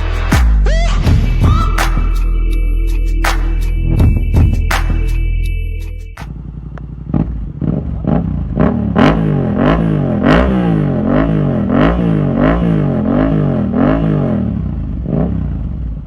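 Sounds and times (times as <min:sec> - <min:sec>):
motorcycle engine revving: 0:05.8 - 0:16.0.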